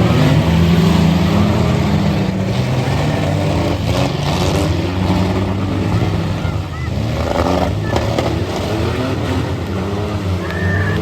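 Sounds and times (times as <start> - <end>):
truck engines revving: 0.0 - 11.0.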